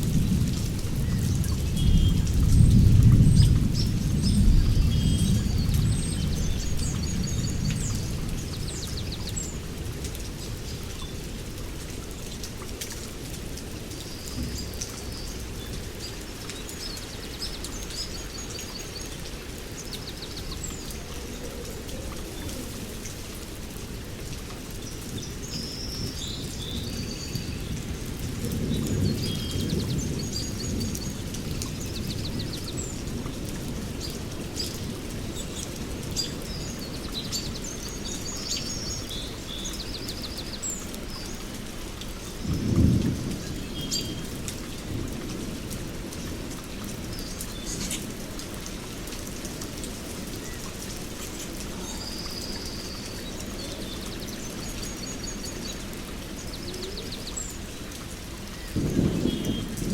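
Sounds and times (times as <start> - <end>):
thunder rumbling: 0.0 - 10.5, 26.0 - 35.2, 42.4 - 47.1, 58.5 - 59.9
steady rain: 0.0 - 59.9
birds chirping: 49.8 - 57.8
loud thunderclap: 58.7 - 59.9.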